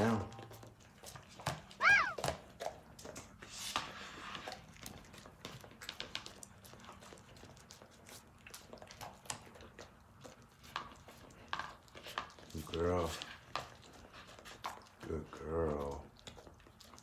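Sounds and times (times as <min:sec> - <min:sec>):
dog crunching food: 0:00.0 - 0:17.0.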